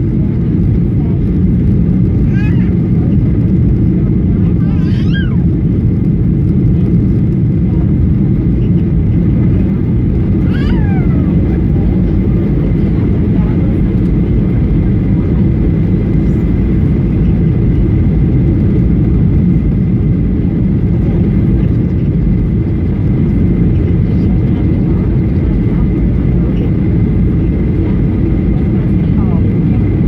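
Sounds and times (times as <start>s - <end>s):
airplane cabin engine rumble: 0.0s - 30.0s.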